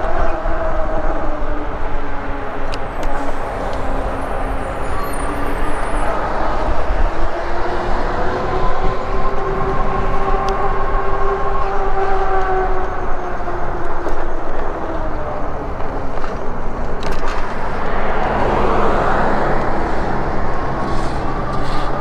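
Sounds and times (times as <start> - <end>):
road noise rumble: 0.0 - 22.0
wind on microphone: 0.0 - 22.0
vehicle passing: 14.6 - 22.0.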